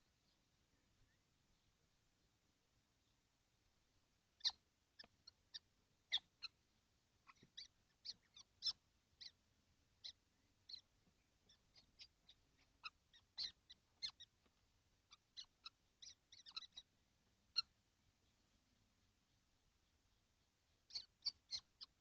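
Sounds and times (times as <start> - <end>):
nestlings squeaky calls: 4.4 - 6.6, 7.2 - 9.4, 10.0 - 16.9, 17.5 - 17.8, 20.8 - 22.0.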